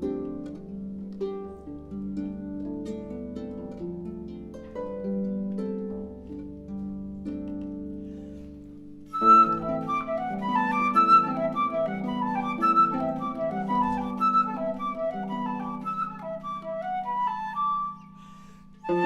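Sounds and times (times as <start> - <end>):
harp plucked notes: 0.0 - 19.0
flute playing: 9.1 - 19.0.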